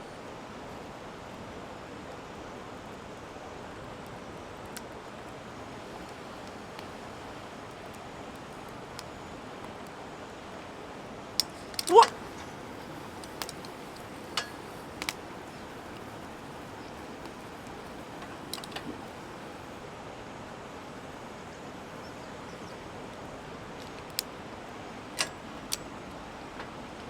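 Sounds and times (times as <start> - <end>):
outdoor background noise: 0.0 - 27.0
sharp clicks: 11.4 - 12.5, 13.1 - 15.7, 16.8 - 19.1.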